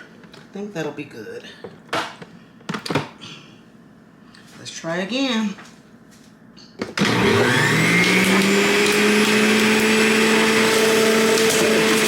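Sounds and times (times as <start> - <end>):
electric juicer motor whine: 7.0 - 12.0.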